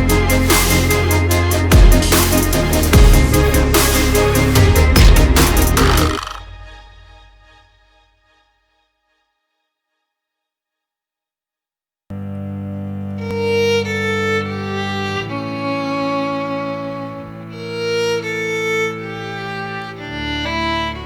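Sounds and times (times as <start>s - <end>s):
held low notes: 0.0s - 6.8s
bowed-string melody: 0.0s - 7.6s, 12.1s - 21.0s.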